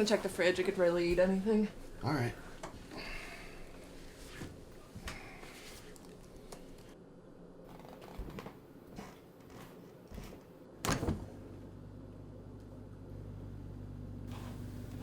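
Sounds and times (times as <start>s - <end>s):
refrigerator door opening: 10.8s - 11.4s.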